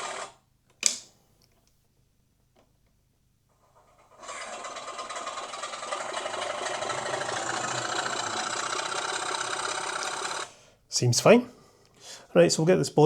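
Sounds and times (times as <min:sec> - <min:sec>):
model train diesel engine sound: 0:04.2 - 0:10.6.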